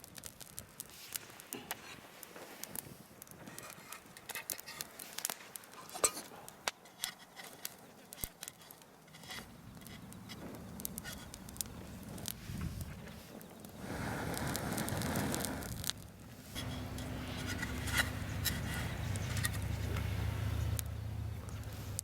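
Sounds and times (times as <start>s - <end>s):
low steady rumble: 13.8s - 22.0s.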